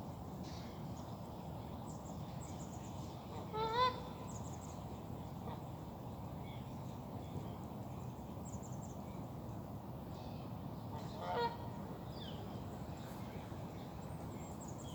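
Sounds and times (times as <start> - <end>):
waterfowl call: 11.2 - 11.6.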